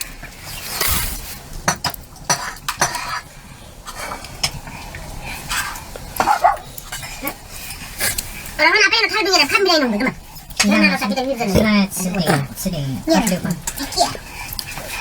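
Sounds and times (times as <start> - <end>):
pots and dishes clinking: 1.6 - 3.3
dog barking: 6.2 - 6.7.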